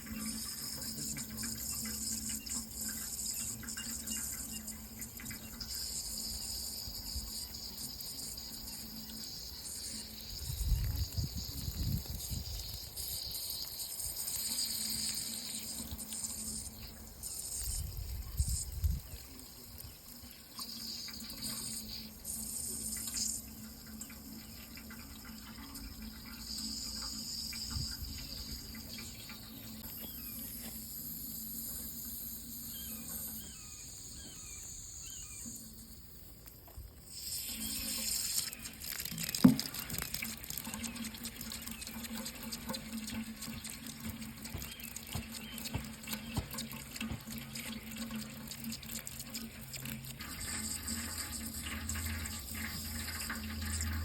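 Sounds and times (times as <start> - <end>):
tap water running into sink: 0.0 - 32.2, 36.7 - 54.0.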